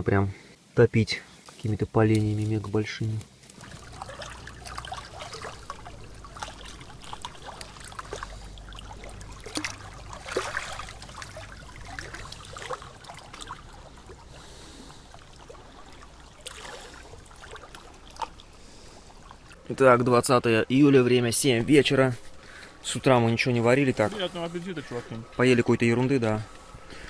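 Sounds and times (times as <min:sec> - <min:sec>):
water trickling and splashing: 0:01.3 - 0:27.0
low steady rumble: 0:01.7 - 0:27.0.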